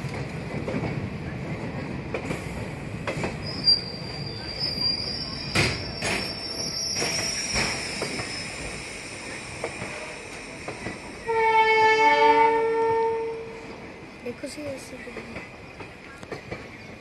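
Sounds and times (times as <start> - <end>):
train wheels squealing: 3.3 - 11.3
train horn: 11.2 - 13.7.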